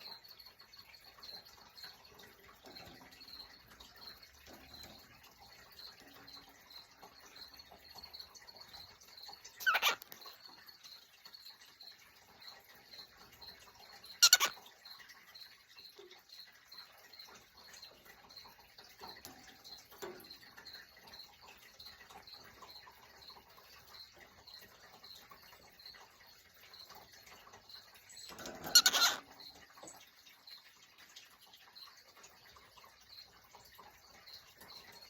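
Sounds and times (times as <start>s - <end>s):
faint steady ticking: 0.0s - 35.0s
cockatiel harsh call: 9.6s - 10.0s, 14.2s - 14.5s, 28.6s - 29.2s.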